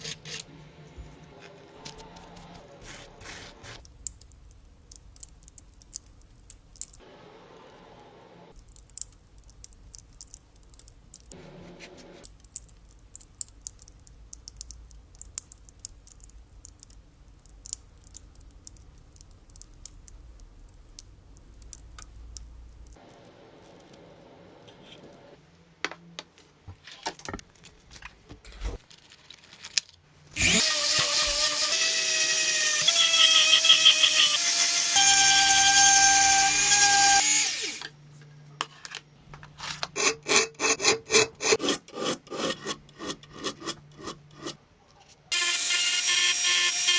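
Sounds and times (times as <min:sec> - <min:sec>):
power tool whining: 0:30.4 - 0:37.9.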